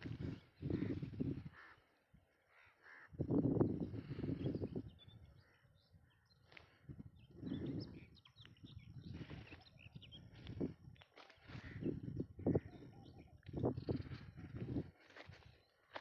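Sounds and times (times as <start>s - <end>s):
small birds chirping: 2.6s - 16.0s.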